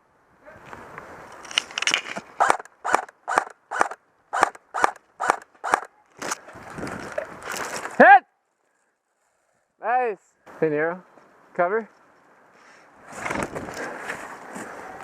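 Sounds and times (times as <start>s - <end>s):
brisk crunching footsteps: 6.1s - 8.0s.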